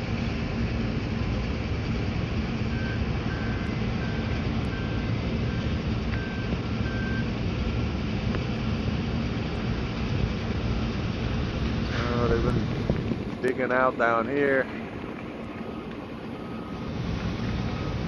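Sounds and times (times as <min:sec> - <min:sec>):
rumble of vehicles and machinery: 0:00.0 - 0:18.0
distant reversing alarm beeping: 0:02.4 - 0:07.4, 0:13.8 - 0:18.0.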